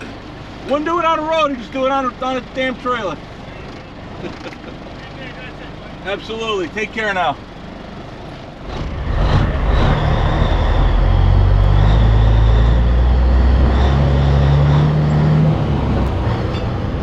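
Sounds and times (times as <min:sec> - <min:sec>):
heavy diesel truck engine: 0:00.0 - 0:17.0.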